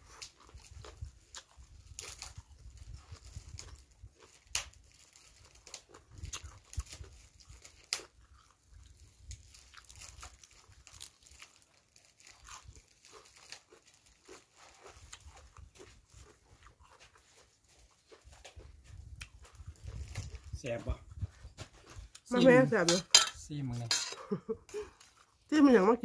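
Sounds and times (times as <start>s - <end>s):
herb leaves being torn: 0.0s - 20.6s
crunchy chewing: 0.0s - 22.3s, 24.6s - 25.6s.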